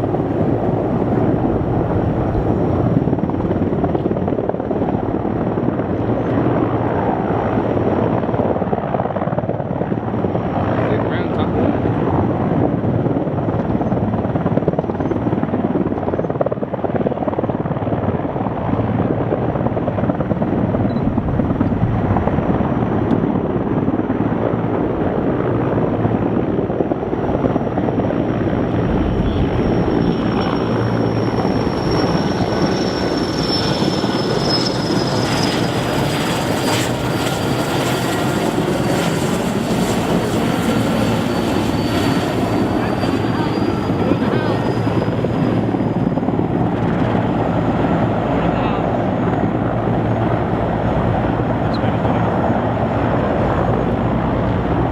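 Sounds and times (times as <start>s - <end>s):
helicopter rotor and engine noise: 0.0s - 54.9s
high engine whine: 24.8s - 49.9s.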